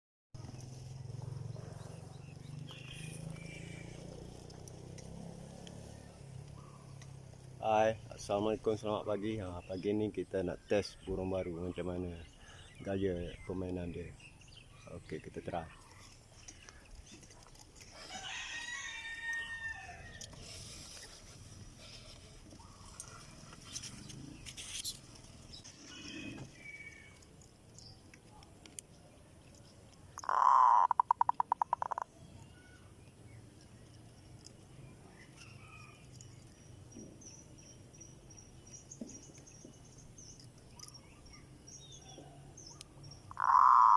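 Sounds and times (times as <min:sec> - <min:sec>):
bird chirps: 0:00.4 - 0:04.7.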